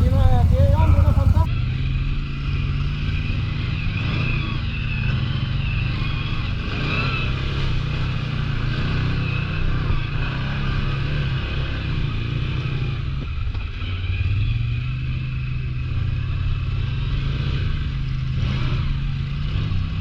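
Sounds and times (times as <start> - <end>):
engine running at low revs: 0.0 - 20.0.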